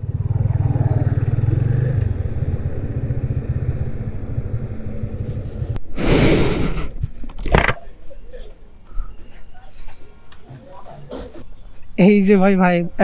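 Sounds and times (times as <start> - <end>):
motorcycle engine low pulse: 0.0 - 5.9.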